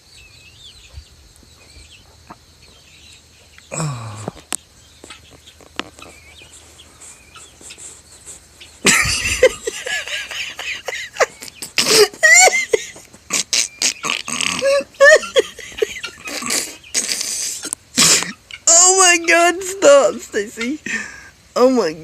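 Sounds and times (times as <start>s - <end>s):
woman laughing loudly: 8.8s - 17.1s.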